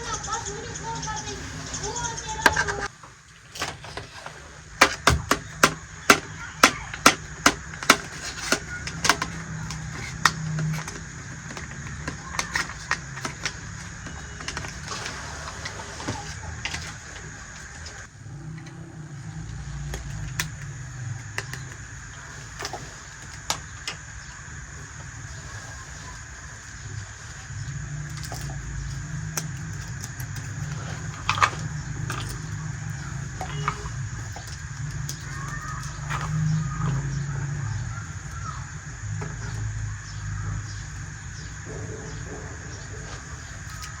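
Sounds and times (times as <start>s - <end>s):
plastic toy pieces clicking: 4.8s - 14.9s.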